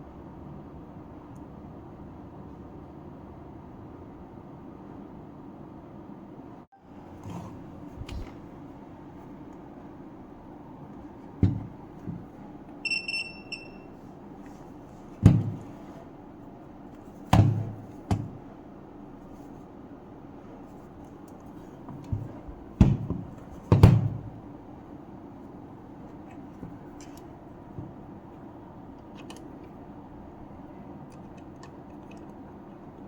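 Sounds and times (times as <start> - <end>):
equipment knocks and clicks: 11.2 - 12.4, 15.2 - 15.9, 17.3 - 18.4, 21.9 - 24.4
short electronic beep: 12.8 - 14.0.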